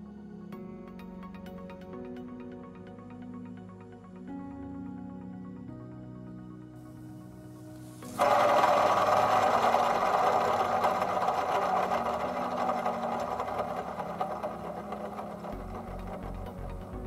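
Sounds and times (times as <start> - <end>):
diesel engine clattering: 8.1 - 17.0.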